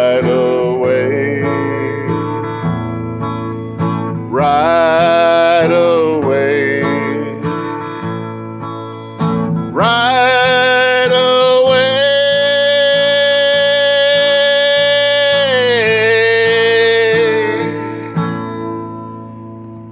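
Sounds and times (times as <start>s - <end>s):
acoustic guitar strumming: 0.0s - 19.9s
man singing long note: 9.8s - 18.0s.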